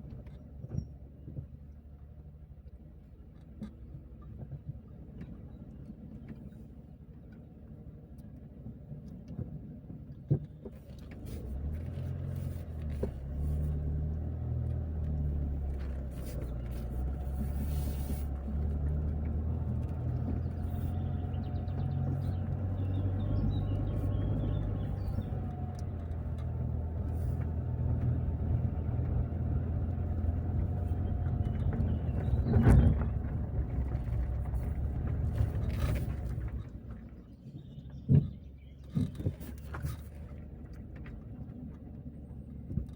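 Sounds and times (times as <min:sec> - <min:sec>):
car engine and road rumble: 0:00.0 - 0:42.9.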